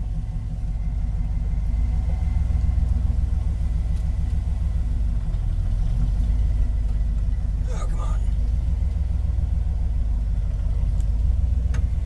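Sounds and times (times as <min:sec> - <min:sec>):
engine running at low revs: 0:00.0 - 0:12.0.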